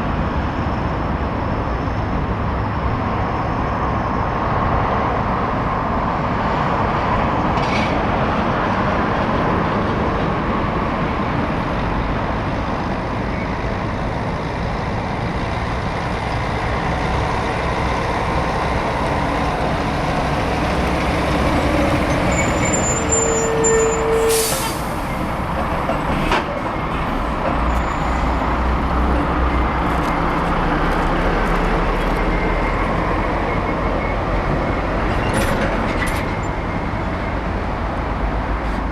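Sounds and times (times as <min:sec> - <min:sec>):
heavy trucks passing: 0:00.0 - 0:38.9
air brakes hissing: 0:21.8 - 0:25.4.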